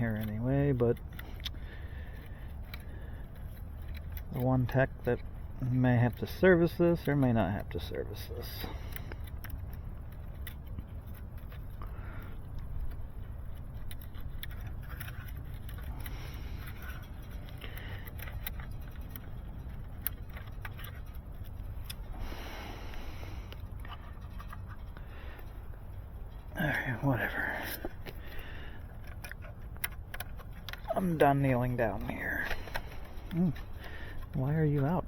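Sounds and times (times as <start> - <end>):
clicks and rattles of handled gear: 0.0 - 35.0
steady low rumble: 0.0 - 35.0.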